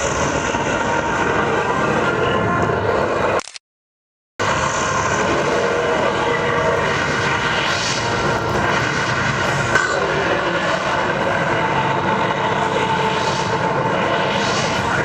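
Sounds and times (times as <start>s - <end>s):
loud roar over loudspeakers: 0.0s - 3.4s, 4.4s - 15.0s.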